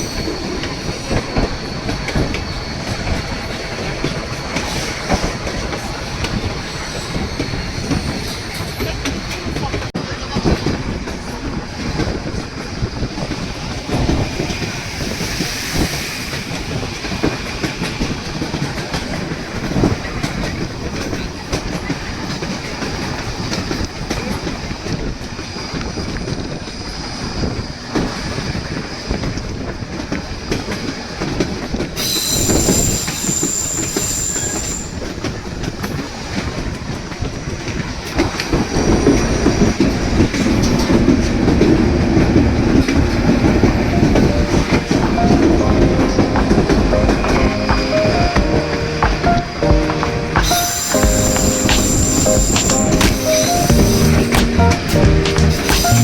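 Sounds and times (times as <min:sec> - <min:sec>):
high wheel squeal: 0:32.0 - 0:35.0, 0:50.4 - 0:54.4.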